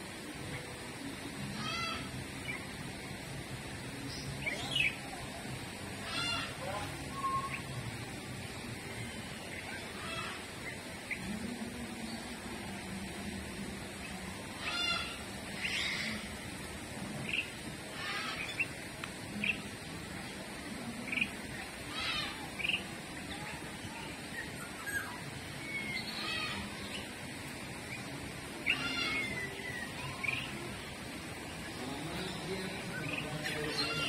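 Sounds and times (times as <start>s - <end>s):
steady background noise: 0.0s - 34.0s
birds chirping: 13.9s - 34.0s.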